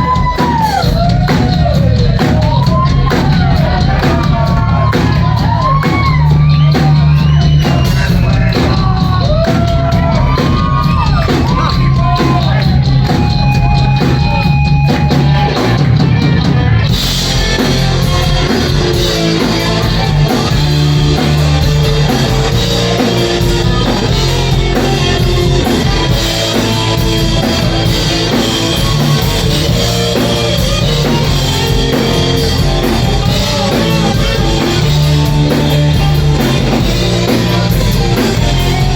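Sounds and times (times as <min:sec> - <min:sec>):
rock band playing: 0:00.0 - 0:38.9
person singing: 0:17.4 - 0:38.9.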